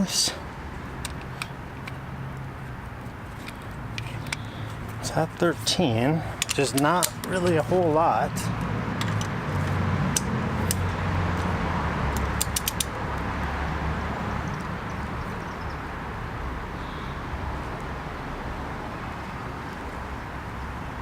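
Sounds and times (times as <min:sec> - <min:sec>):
metallic clicks of hand tools: 0:06.3 - 0:07.6, 0:10.1 - 0:10.9, 0:12.1 - 0:13.0.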